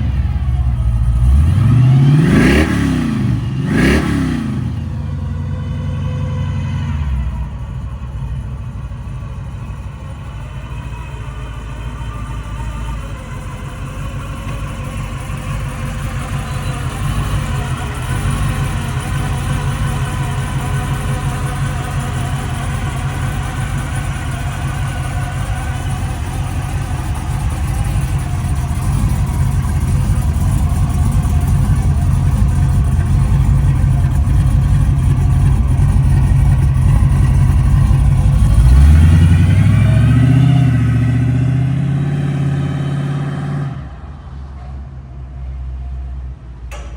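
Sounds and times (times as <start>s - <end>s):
car engine rumbling: 0.0s - 46.9s.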